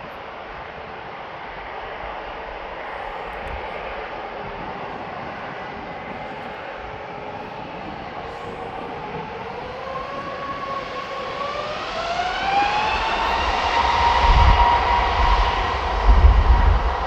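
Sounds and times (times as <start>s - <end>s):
jet engines whining: 0.0s - 17.0s
heavy low rumble: 12.3s - 17.0s.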